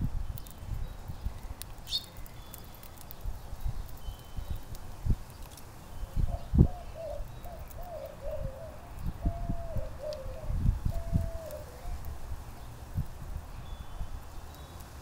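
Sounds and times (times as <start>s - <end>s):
wind buffeting microphone: 0.0s - 1.6s, 6.0s - 14.3s
dove cooing: 6.3s - 12.0s.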